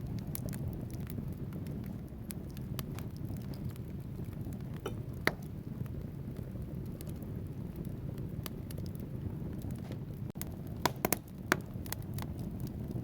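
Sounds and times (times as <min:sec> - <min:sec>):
fire flames rushing: 0:00.0 - 0:13.0
logs crackling and popping: 0:00.0 - 0:13.0.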